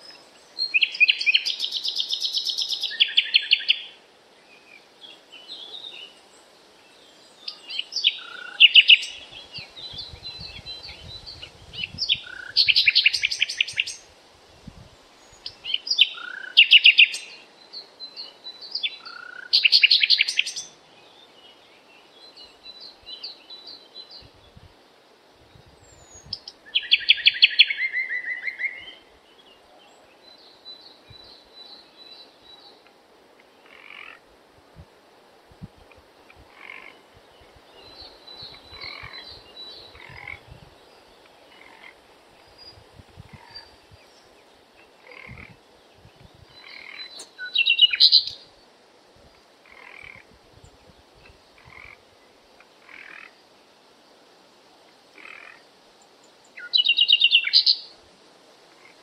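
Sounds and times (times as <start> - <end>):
songbird singing trilled phrases: 0.0 - 4.0, 7.0 - 14.1, 15.2 - 24.3, 25.8 - 29.6, 36.5 - 48.6, 56.4 - 57.9
low background hiss: 0.0 - 59.0.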